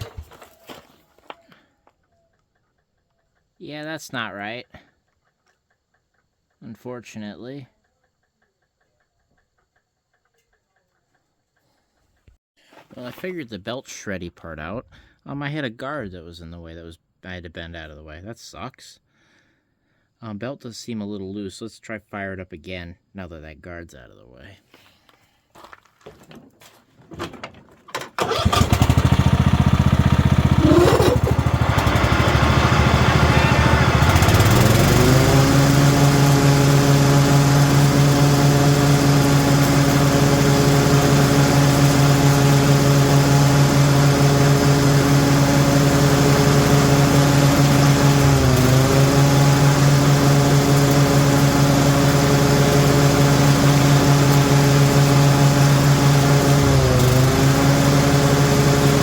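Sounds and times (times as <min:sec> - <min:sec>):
lawn mower engine starting: 0:00.0 - 0:01.6, 0:27.1 - 0:59.0.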